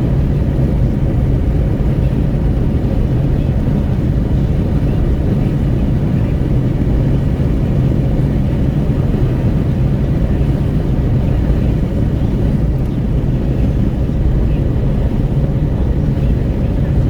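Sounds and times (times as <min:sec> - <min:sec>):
wind at open car window: 0:00.0 - 0:17.0.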